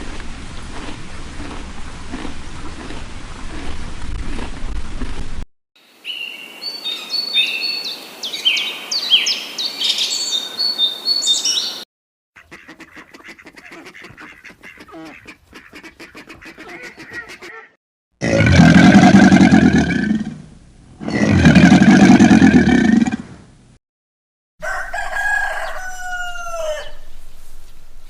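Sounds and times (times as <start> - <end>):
birds chirping: 5.9 - 11.8.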